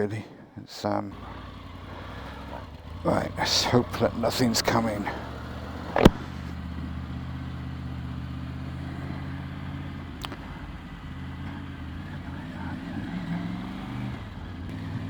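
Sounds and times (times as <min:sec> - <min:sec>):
motorcycle engine idling: 0:00.8 - 0:15.0
sharp click: 0:05.9 - 0:06.6.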